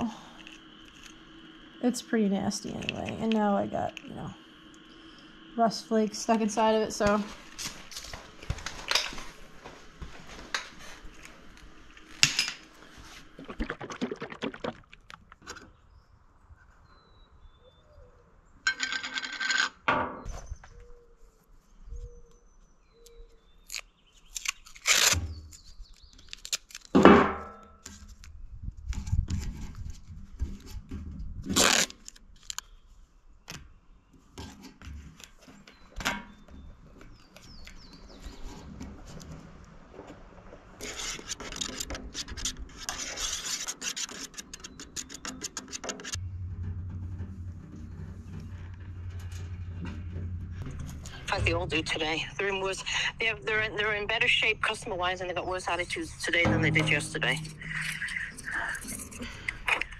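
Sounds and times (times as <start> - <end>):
metal parts clinking and scraping: 18.7 - 19.8
metal rattle: 44.0 - 52.1, 56.3 - 58.5.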